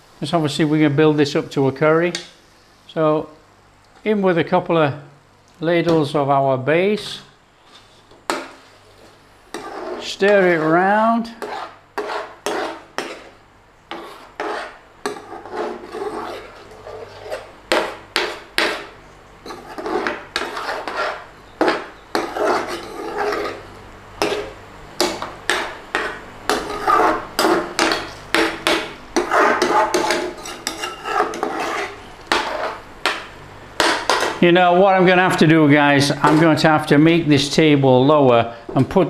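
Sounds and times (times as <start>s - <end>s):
spoon scraping a pan: 7.0s - 34.5s, 35.3s - 37.2s
spoon knocking against pan: 17.7s - 18.9s, 24.2s - 31.6s, 32.3s - 34.4s.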